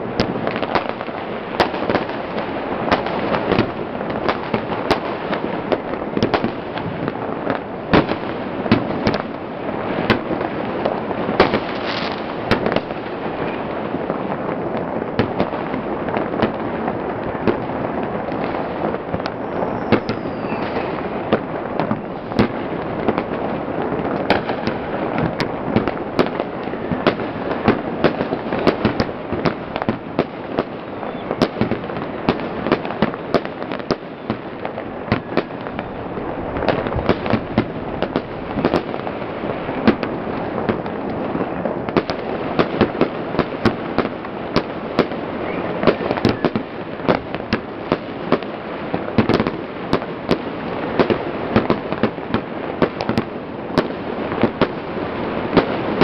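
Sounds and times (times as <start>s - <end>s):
fireworks crackling bangs: 0.0s - 56.0s
low rumbling din: 35.6s - 38.6s.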